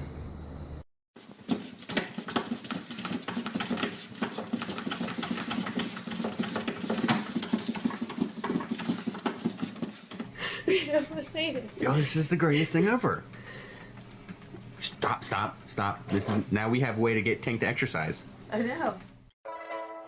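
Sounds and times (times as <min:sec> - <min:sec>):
pet's feet pattering on hard floor: 0:01.2 - 0:11.8.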